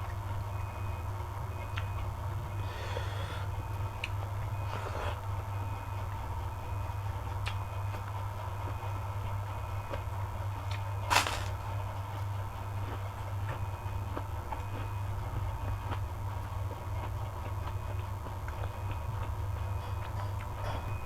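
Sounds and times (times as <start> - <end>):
sharp crunch: 11.1 - 11.7.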